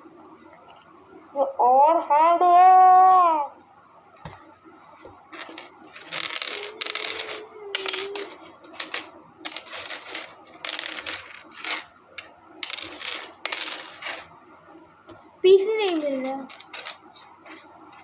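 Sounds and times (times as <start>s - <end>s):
small metal parts clinking and rattling: 5.4s - 14.3s, 15.8s - 17.6s.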